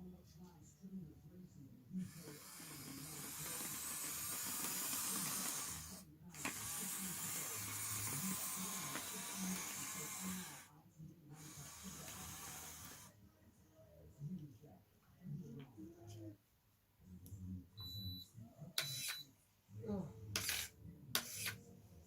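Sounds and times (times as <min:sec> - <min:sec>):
model excavator motors whirring: 0:02.1 - 0:10.7, 0:11.4 - 0:13.1.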